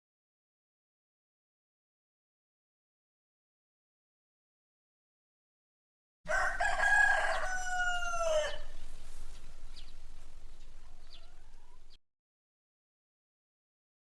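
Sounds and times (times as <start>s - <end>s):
rooster crowing: 6.3s - 12.0s.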